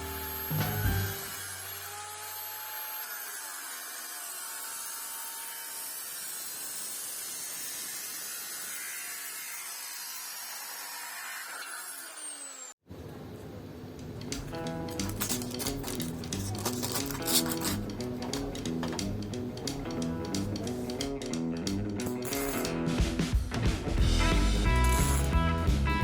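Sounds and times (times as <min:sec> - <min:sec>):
power tool running: 0:00.0 - 0:12.8.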